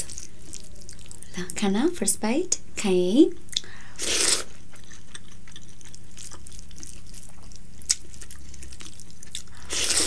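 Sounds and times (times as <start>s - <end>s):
wet chewing with mouth clicks: 3.5s - 10.0s.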